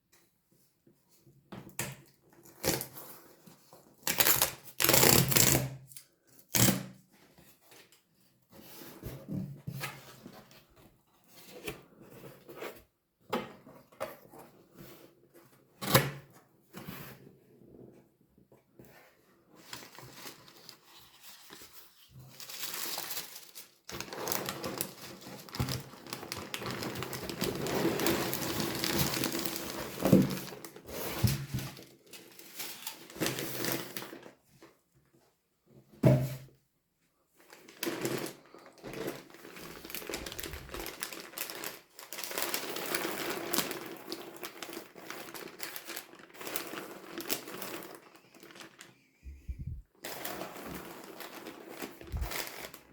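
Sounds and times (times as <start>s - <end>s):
packaging crinkling and rustling: 4.0s - 6.8s, 19.6s - 34.4s, 37.4s - 52.9s.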